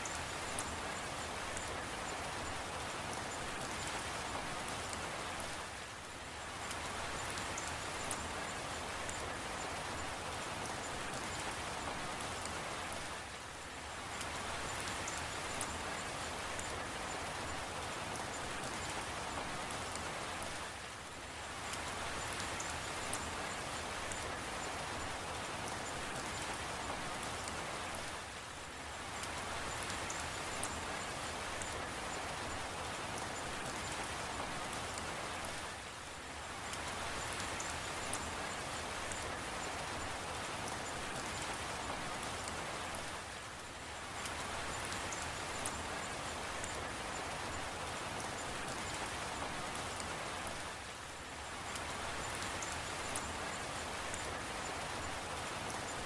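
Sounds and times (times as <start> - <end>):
steady rain hiss: 0.0 - 56.0
raindrop ticks: 6.6 - 13.1, 51.6 - 56.0.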